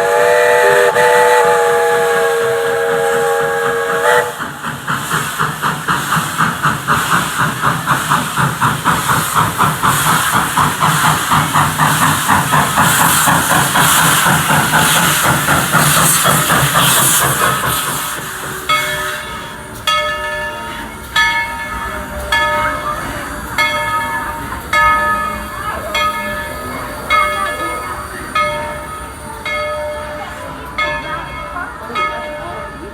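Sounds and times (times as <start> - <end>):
steam whistle: 0.0 - 4.6
steam locomotive exhaust chuffing: 0.0 - 32.9.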